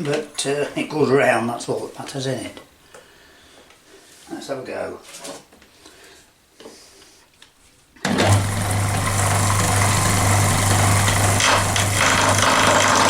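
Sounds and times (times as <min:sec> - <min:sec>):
wood lathe motor running: 0:08.1 - 0:13.0
noisy rattle: 0:08.2 - 0:13.0.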